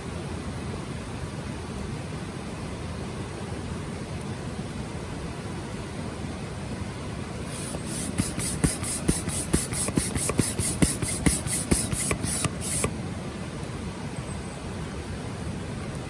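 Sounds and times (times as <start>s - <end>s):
steady hiss: 7.3s - 14.1s
rhythmic scraping strokes: 7.5s - 12.9s.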